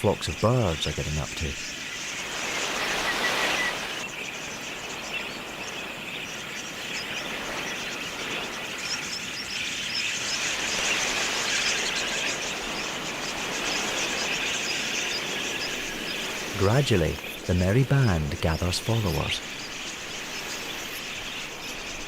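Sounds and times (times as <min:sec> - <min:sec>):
budgerigars chirping: 0:00.0 - 0:05.8, 0:08.9 - 0:22.0
steady hiss: 0:00.0 - 0:22.0.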